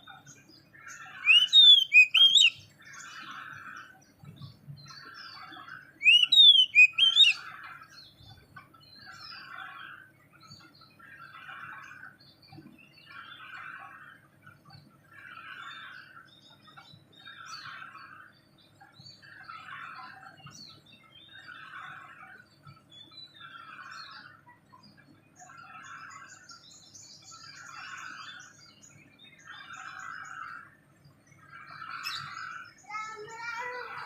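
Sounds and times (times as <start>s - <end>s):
bird calling: 0.8s - 3.9s, 5.0s - 7.7s
high quick bird chirps: 1.2s - 2.6s, 6.0s - 7.4s.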